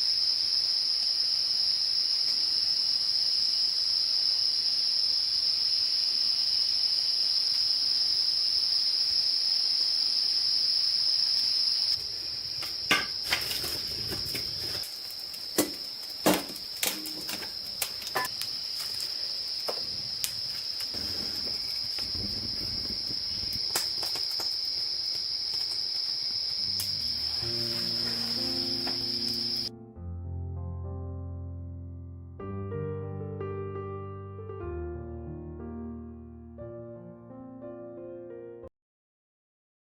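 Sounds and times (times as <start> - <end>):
insects chirping: 0.0 - 29.7.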